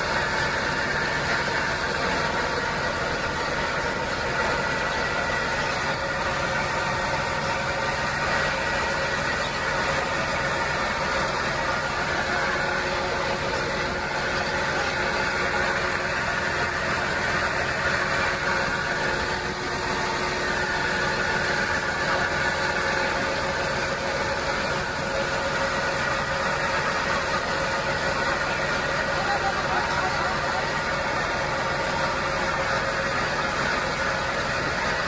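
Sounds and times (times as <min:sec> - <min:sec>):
boat engine droning: 0:00.0 - 0:35.0.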